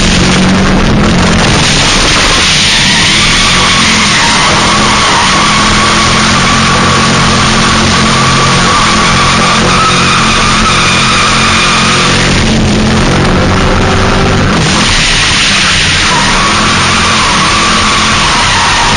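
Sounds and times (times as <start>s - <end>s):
car engine at high revs: 0.0s - 18.9s
tyres squealing: 2.0s - 12.4s, 14.5s - 18.9s.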